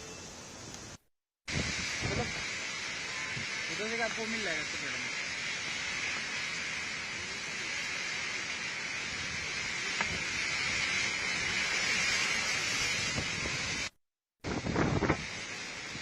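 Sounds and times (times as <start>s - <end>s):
heavy rain: 0.2s - 16.0s
strong wind: 0.3s - 3.8s, 8.7s - 16.0s
wind buffeting microphone: 1.5s - 2.5s, 9.1s - 16.0s.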